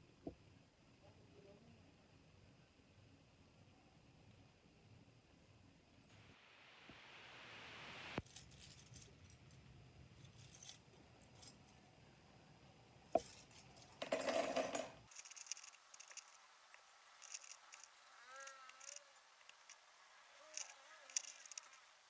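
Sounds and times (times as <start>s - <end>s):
scratchy rustle: 15.1s - 22.0s.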